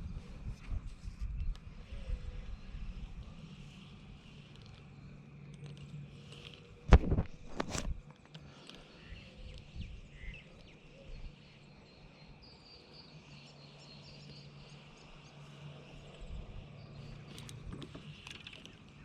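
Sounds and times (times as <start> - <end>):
faint bird chirps: 8.5 - 19.0.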